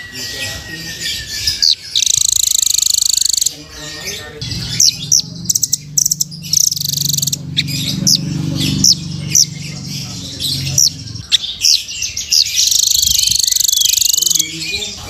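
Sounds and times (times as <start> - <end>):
bird sharp high chirps: 0.0 - 15.0
bird fast rattling trill: 0.4 - 3.6, 4.5 - 9.6, 12.2 - 14.5.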